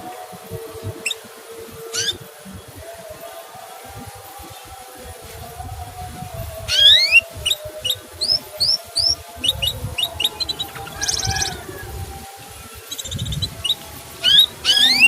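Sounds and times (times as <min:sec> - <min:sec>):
canary whistle: 0:00.0 - 0:02.3, 0:06.6 - 0:15.0
buzzy trill: 0:00.0 - 0:15.0
canary chirps: 0:00.8 - 0:02.3, 0:06.6 - 0:15.0.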